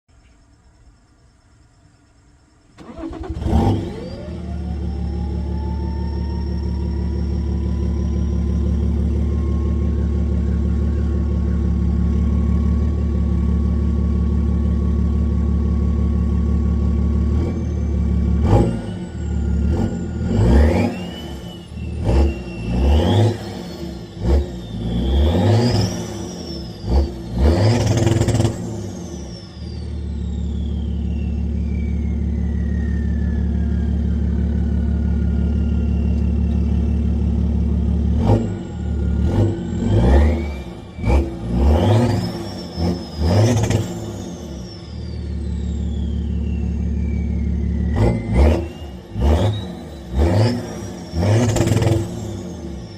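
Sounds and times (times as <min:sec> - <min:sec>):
diesel engine revving: 0:02.7 - 0:52.9
turbo whistle: 0:18.4 - 0:37.4, 0:38.3 - 0:52.9.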